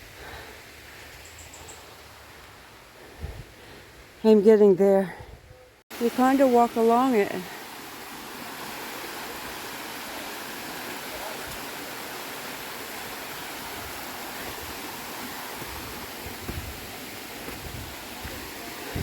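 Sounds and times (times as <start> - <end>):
waterfall rushing: 5.9 - 19.0
soft low thumps: 15.6 - 19.0.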